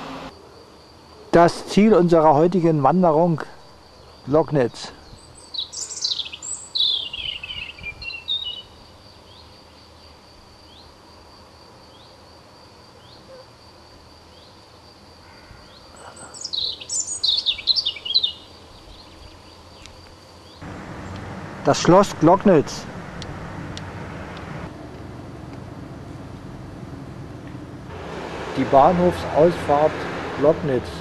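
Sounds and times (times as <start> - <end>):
songbird warbling: 5.1 - 8.8, 15.3 - 21.3.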